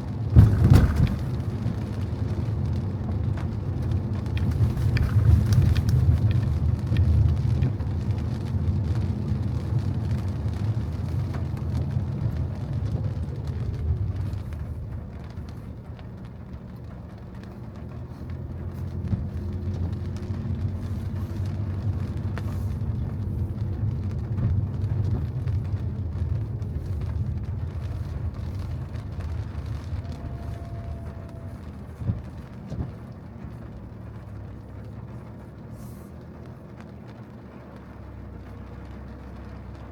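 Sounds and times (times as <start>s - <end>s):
car driving on wet road: 0.0s - 39.9s.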